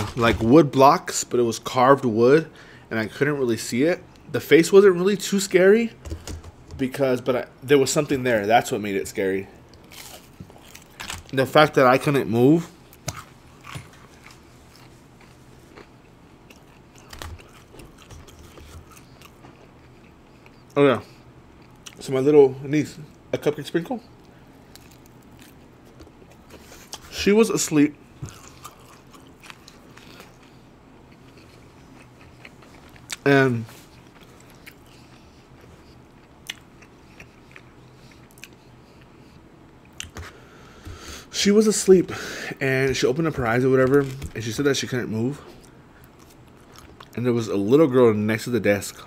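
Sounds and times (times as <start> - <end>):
faint chewing mouth noises: 12.9 - 22.0, 28.2 - 41.1.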